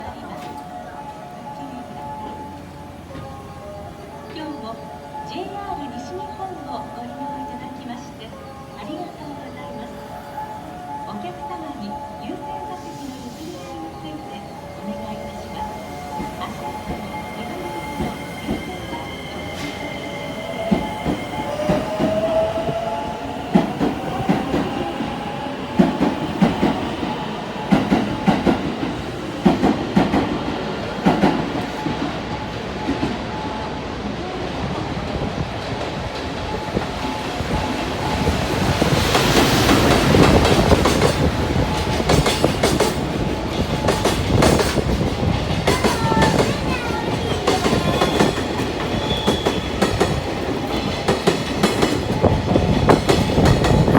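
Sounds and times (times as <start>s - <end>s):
train wheels clacking over rail joints: 37.5s - 53.9s.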